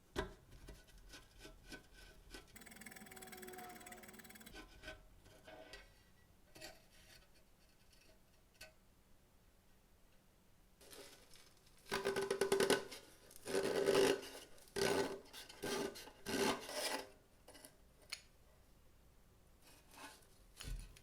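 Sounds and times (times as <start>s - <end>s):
scraping strokes on metal: 2.6s - 5.6s.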